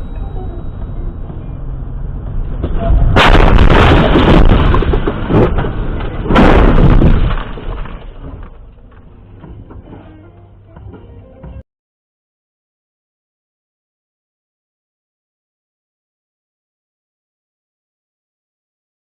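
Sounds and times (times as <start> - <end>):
low road rumble: 0.0 - 11.6
loud car crash impacts: 2.6 - 8.5.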